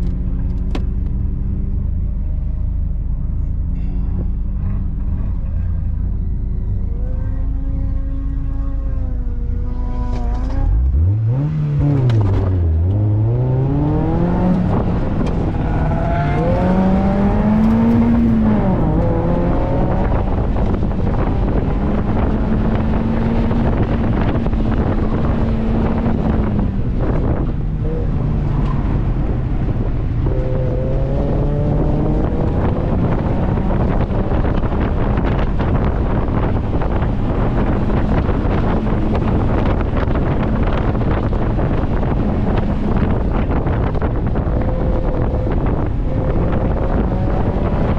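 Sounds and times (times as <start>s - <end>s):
car engine revving: 0.0s - 47.9s
wind and road noise: 0.0s - 47.9s.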